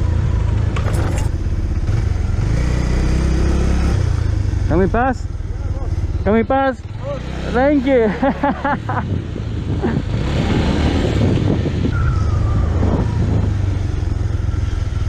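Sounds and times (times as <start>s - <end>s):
motorcycle engine running: 0.0s - 11.9s
wind rush on microphone: 8.6s - 14.5s.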